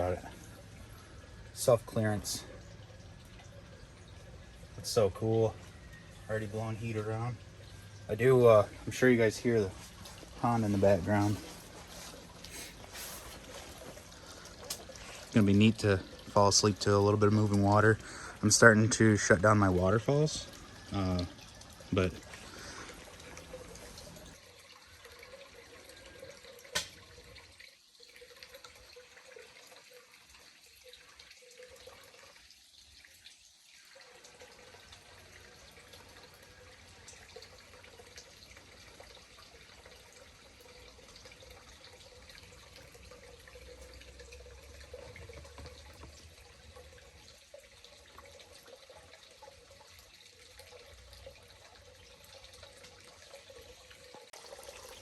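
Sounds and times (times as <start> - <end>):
pond waterfall trickling: 0.0 - 55.0.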